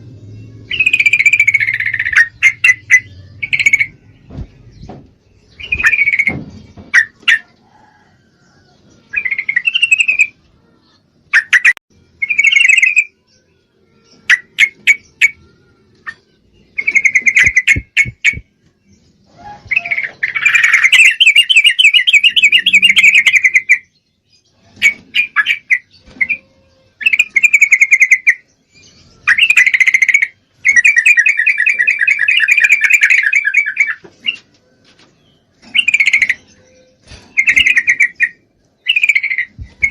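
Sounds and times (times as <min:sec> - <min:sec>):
bird chattering and trilling: 0:00.4 - 0:07.5, 0:16.0 - 0:18.4, 0:19.3 - 0:24.0, 0:24.7 - 0:28.5, 0:29.1 - 0:34.5, 0:35.6 - 0:39.9.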